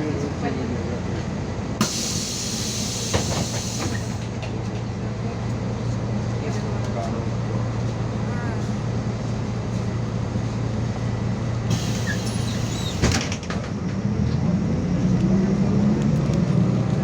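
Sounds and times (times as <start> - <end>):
bus engine running: 0.0 - 17.0
air brake hiss: 1.8 - 4.3, 11.7 - 13.2.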